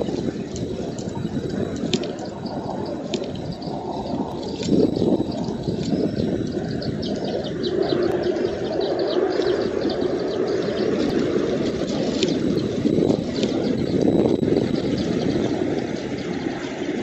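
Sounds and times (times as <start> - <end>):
rapid high bird chirps: 2.2 - 11.1.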